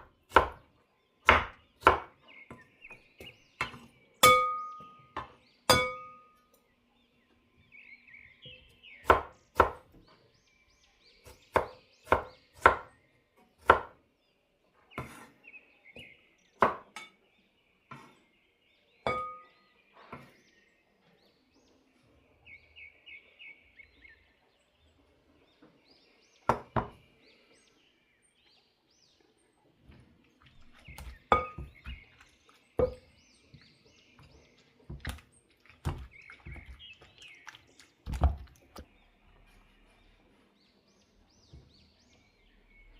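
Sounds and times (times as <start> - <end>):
birds chirping: 0.0 - 42.9
kitchen knocks and clinks: 30.9 - 32.0.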